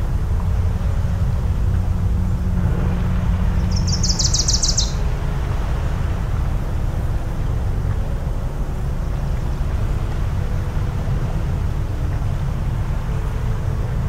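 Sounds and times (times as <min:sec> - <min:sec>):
motorboat engine rumble: 0:00.0 - 0:14.0
bird trilling: 0:03.6 - 0:05.0.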